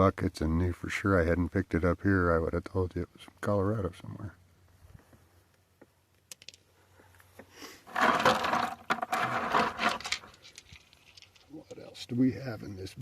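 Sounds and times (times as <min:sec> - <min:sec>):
rocks scraping in a bucket of water: 0:07.8 - 0:11.5.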